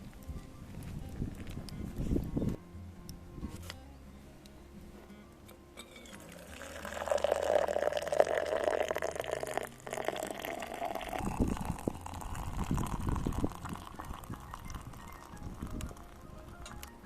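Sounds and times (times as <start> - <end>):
water pouring into a container: 6.2 - 16.2.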